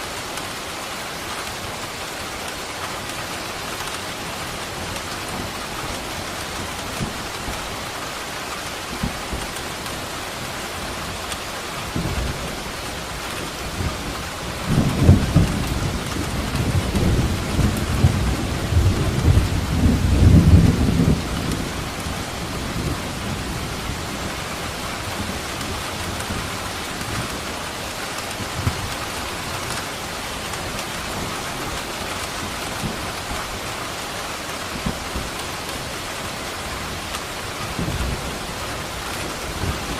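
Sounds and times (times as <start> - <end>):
heavy rain: 0.0 - 39.9
thunder rolling: 14.6 - 24.1.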